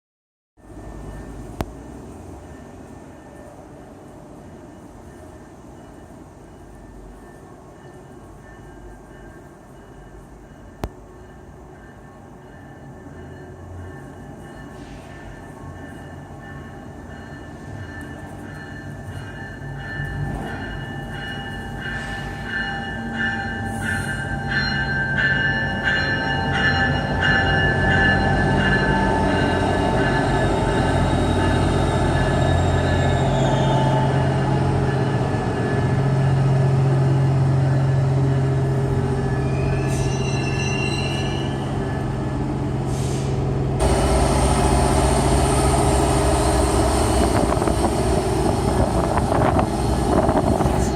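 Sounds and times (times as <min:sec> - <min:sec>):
high wheel squeal: 0:28.8 - 0:34.5, 0:39.2 - 0:42.0.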